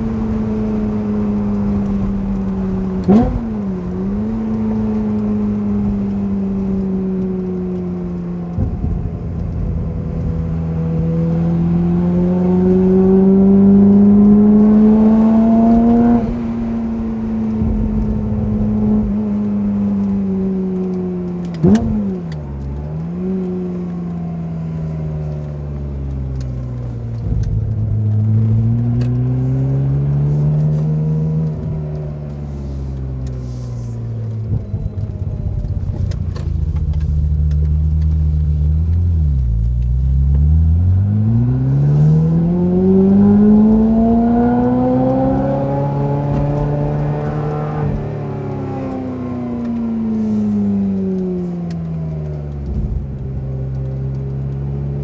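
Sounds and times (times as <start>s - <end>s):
sports car engine revving: 0.0s - 55.0s.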